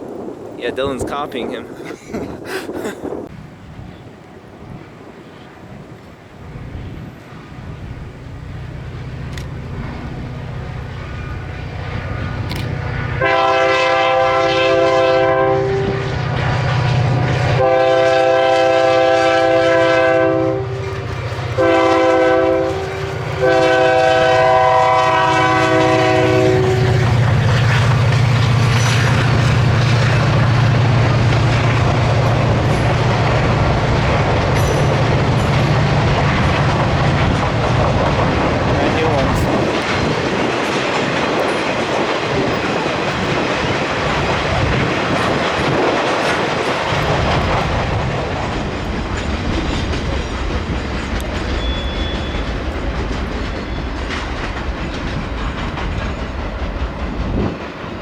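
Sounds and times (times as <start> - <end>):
train rolling past: 0.0 - 58.0
locomotive engine drone: 3.2 - 58.0
locomotive air horn: 13.0 - 16.8, 17.5 - 27.2.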